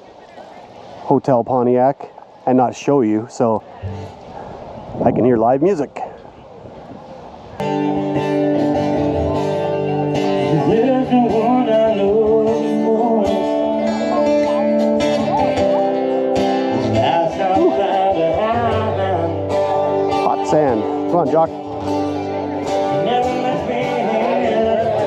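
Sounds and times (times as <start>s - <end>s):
acoustic guitar: 3.8s - 4.4s, 7.6s - 25.0s
person singing: 9.5s - 16.0s, 16.8s - 20.0s, 22.9s - 25.0s.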